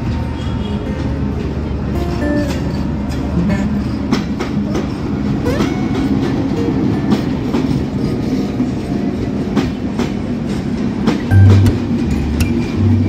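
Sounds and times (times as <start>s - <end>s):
passenger coaches rumbling: 0.0s - 13.0s
locomotive engine drone: 11.3s - 13.0s.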